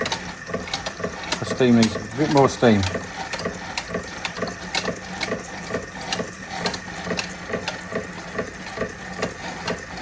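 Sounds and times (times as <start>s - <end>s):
low mechanical hum: 0.0s - 10.0s
toy steam engine clicking: 0.0s - 10.0s.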